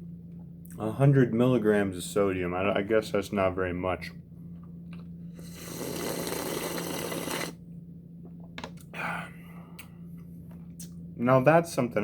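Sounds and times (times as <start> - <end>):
person slurping brine: 5.3 - 7.6.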